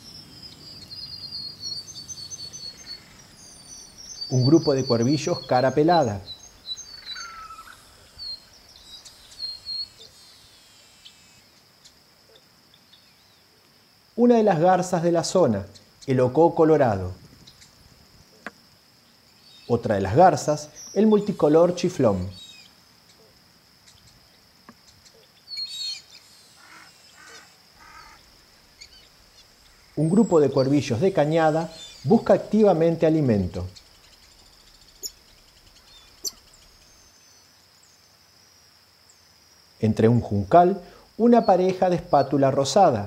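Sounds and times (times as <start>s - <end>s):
lower falling bird call: 0.0s - 11.6s, 19.5s - 38.0s
birds chirping: 0.0s - 13.6s, 14.2s - 38.2s, 39.1s - 43.0s
faint outdoor hiss: 0.0s - 43.0s
high whistled bird call: 35.8s - 37.2s.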